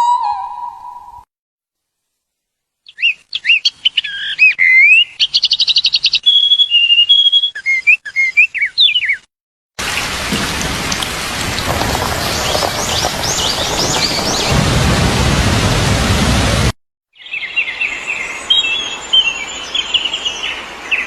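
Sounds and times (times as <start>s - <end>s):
songbird singing whistled phrases: 2.9s - 9.3s
birds chirping: 9.9s - 14.6s.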